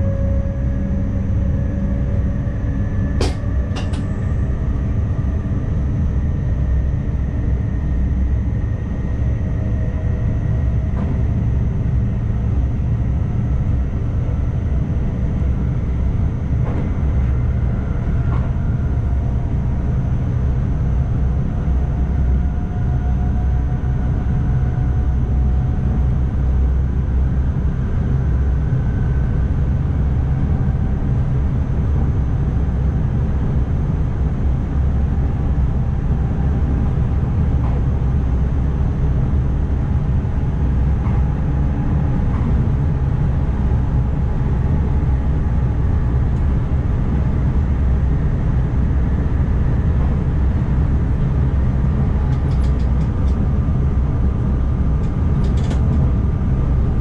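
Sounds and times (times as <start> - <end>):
train running rumble: 0.0 - 57.0.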